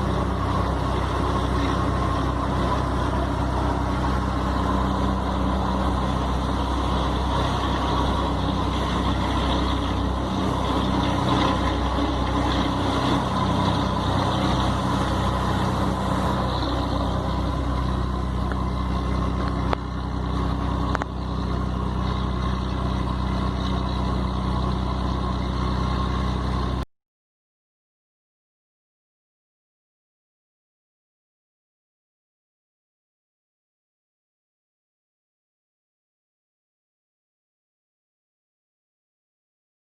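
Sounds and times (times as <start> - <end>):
truck diesel engine running: 0.0 - 26.8.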